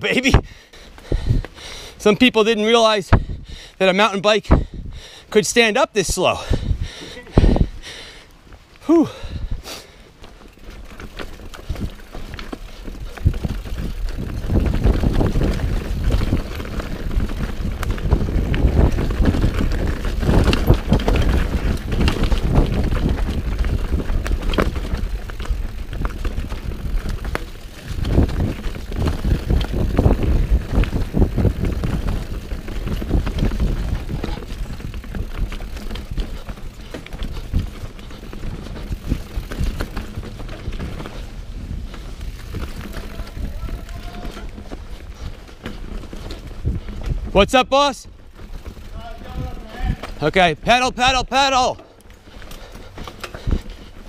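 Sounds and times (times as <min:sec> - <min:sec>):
bike rattling and clicking: 0:00.0 - 0:03.7, 0:04.5 - 0:54.0
bike tyres on dirt: 0:00.0 - 0:54.0
wind on microphone: 0:00.3 - 0:01.5, 0:03.1 - 0:03.6, 0:04.4 - 0:05.1, 0:06.4 - 0:07.9, 0:12.6 - 0:47.4.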